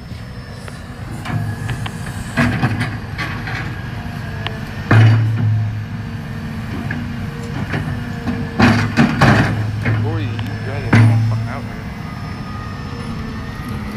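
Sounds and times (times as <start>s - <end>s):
diesel engine running: 0.0s - 13.9s
scattered knocks: 4.4s - 12.0s
loud bang: 8.6s - 12.0s.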